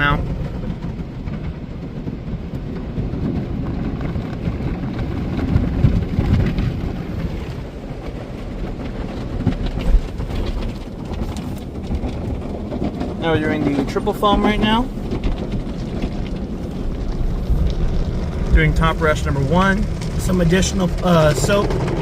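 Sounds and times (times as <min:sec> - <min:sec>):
heavy thumps: 0:09.4 - 0:22.0
car wash brushes scrubbing: 0:09.8 - 0:22.0.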